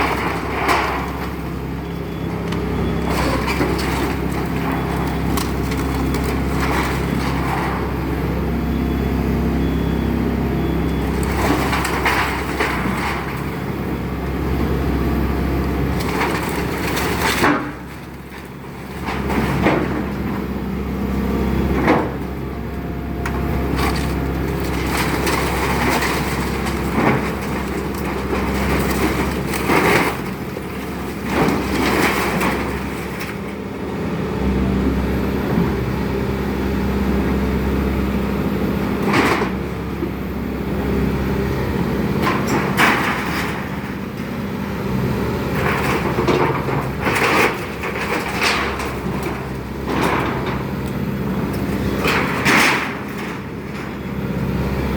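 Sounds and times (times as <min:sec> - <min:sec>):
excavator engine running: 0:00.0 - 0:54.9
wood splintering and cracking: 0:02.5 - 0:07.8, 0:11.0 - 0:13.8, 0:15.8 - 0:20.4, 0:23.7 - 0:33.6, 0:42.2 - 0:44.3, 0:45.5 - 0:50.6, 0:51.5 - 0:54.0.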